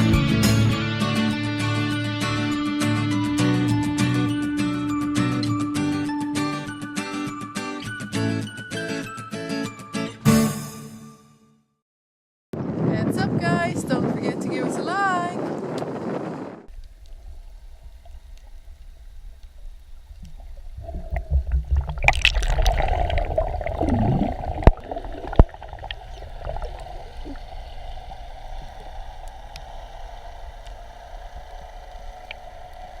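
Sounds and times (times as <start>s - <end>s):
low rumble: 15.5s - 33.0s
water gurgling and sloshing: 16.7s - 33.0s.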